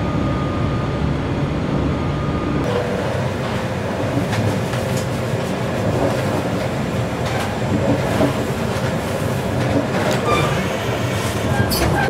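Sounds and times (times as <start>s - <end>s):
train wheels rumbling: 2.6s - 12.0s
rail clicks: 2.7s - 12.0s.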